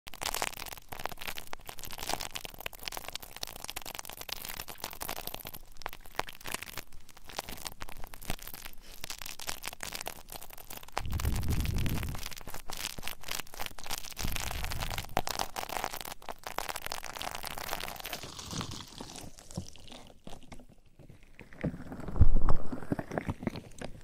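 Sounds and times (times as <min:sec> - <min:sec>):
rubbing on a microphone: 0:11.0 - 0:13.0, 0:14.2 - 0:15.6.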